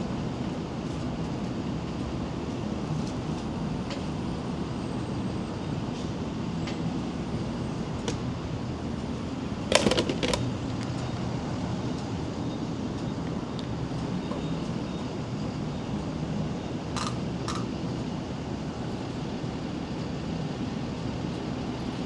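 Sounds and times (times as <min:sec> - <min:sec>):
motorcycle engine rumbling: 0:09.7 - 0:11.2.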